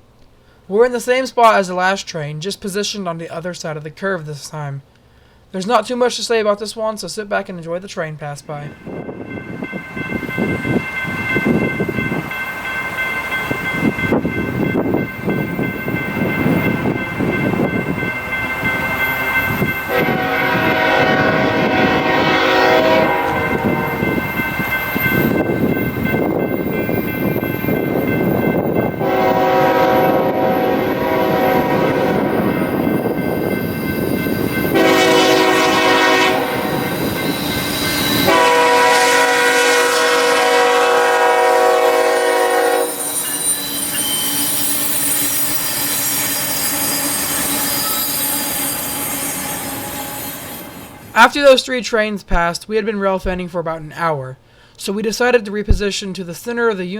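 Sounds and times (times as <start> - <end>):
freight train passing: 7.1 - 51.5
train horn blasts: 19.9 - 24.5, 29.0 - 33.2, 34.6 - 44.3
high squeal: 36.6 - 40.3, 42.7 - 51.1.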